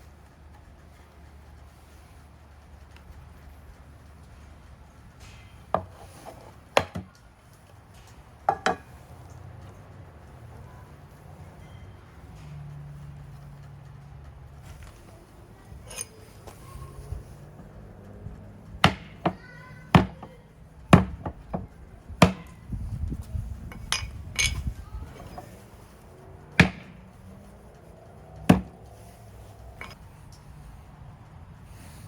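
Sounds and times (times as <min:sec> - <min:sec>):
knocks on a hard surface: 0:28.5 - 0:28.7.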